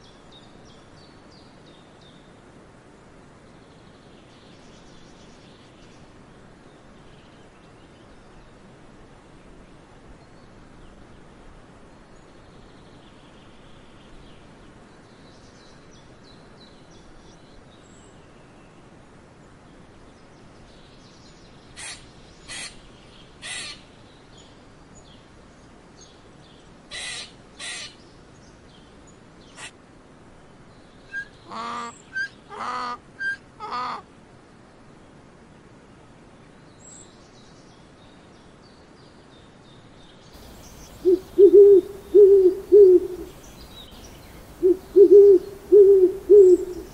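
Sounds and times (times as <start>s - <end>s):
short animal calls: 40.4s - 43.5s
faint chirps: 40.4s - 46.9s.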